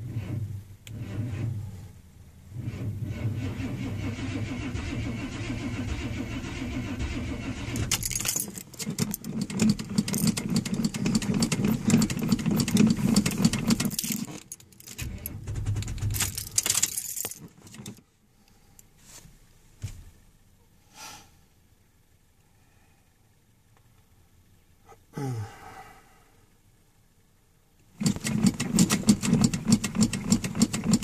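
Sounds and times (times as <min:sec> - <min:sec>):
car engine running: 0:00.0 - 0:14.0, 0:15.0 - 0:18.0, 0:27.9 - 0:31.0
starter cranking engine: 0:00.1 - 0:01.7, 0:02.6 - 0:18.0, 0:28.0 - 0:31.0.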